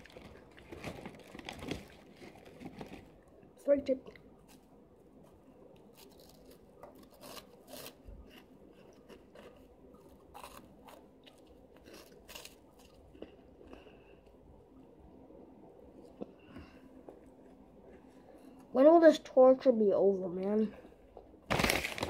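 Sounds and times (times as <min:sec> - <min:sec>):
crunching and chewing snack: 0:00.0 - 0:03.3, 0:05.6 - 0:14.4.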